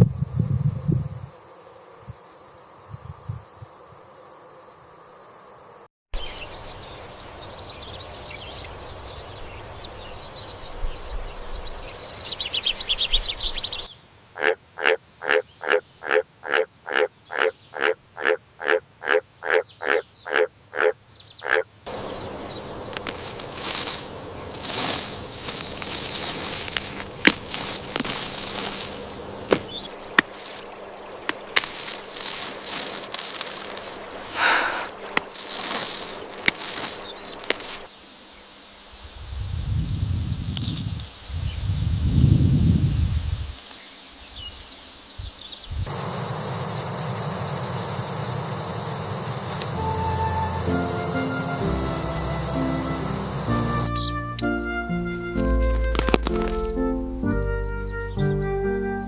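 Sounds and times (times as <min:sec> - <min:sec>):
outdoor nature ambience: 0:00.0 - 0:59.0
frog croaking: 0:14.4 - 0:22.1.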